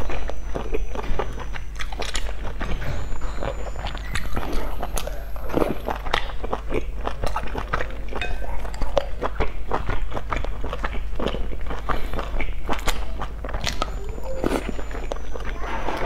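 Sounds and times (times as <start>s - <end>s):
wet mouth chewing: 0.0s - 16.0s.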